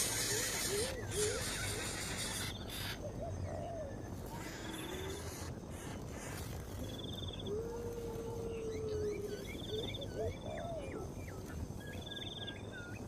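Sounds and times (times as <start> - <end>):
bird rasping hiss: 0.0 - 3.0.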